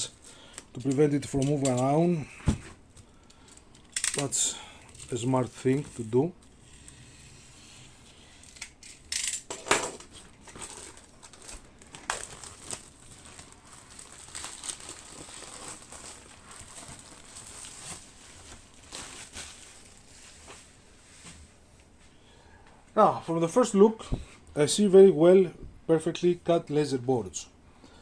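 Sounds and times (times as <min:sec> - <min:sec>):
packaging crinkling and tearing: 0:10.0 - 0:20.7.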